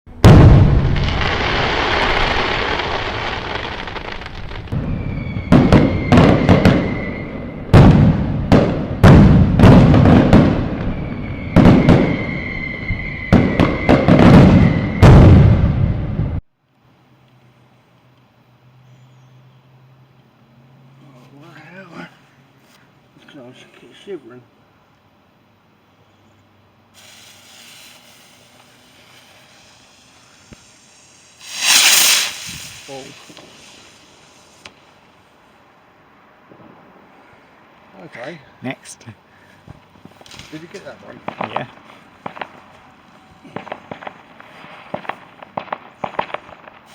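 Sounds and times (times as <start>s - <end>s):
fireworks bangs: 0.1s - 16.2s, 27.0s - 35.1s, 40.0s - 42.7s, 43.4s - 46.9s
fireworks crackling hiss: 0.3s - 7.9s, 26.9s - 35.8s, 39.4s - 46.9s
firework whistle: 4.6s - 8.0s, 10.6s - 15.8s, 27.0s - 34.8s
firework fuse hissing: 26.9s - 35.4s, 43.6s - 46.9s.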